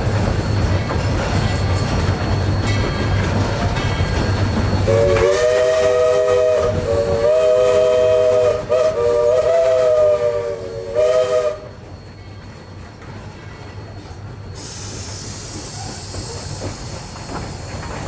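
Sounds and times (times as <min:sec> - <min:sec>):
steam hiss: 0:00.0 - 0:12.9, 0:13.7 - 0:18.0
steam locomotive chime whistle: 0:04.0 - 0:13.0.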